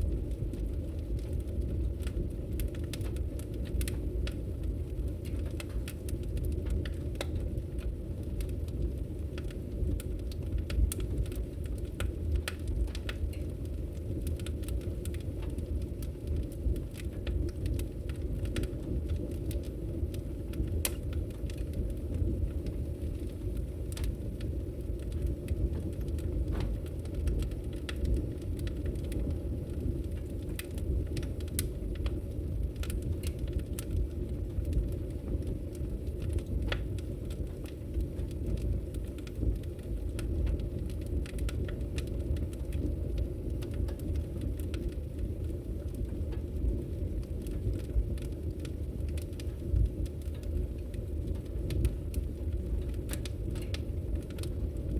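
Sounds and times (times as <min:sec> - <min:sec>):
logs crackling in a fireplace: 0:00.0 - 0:54.9.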